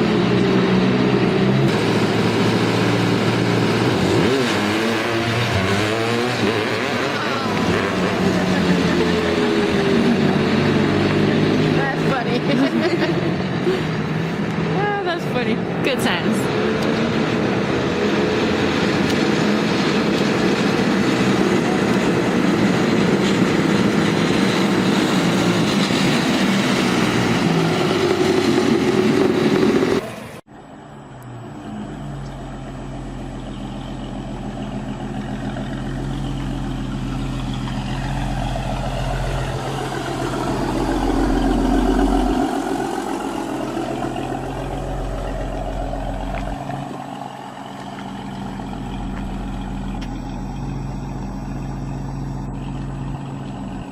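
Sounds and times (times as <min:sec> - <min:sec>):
engine low hum: 0:29.0 - 0:53.9.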